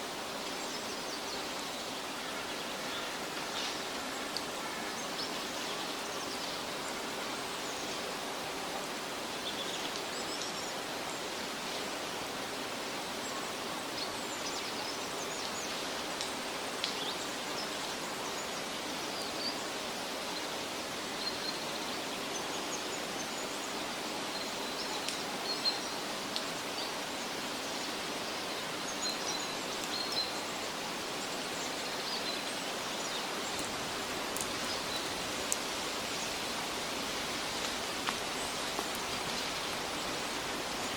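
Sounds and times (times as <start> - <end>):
forest ambience hiss: 0.0 - 40.9
faint light ticks: 3.3 - 4.5, 16.1 - 17.1, 25.0 - 25.3, 26.3 - 26.6, 29.8 - 30.2, 33.5 - 35.7
small birds chirping: 13.3 - 40.9.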